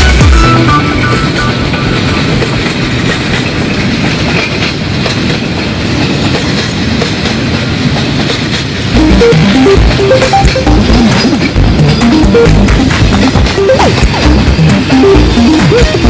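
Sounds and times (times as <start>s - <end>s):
music: 0.0s - 2.4s, 8.9s - 16.0s
train wheels clattering over joints: 1.0s - 9.0s.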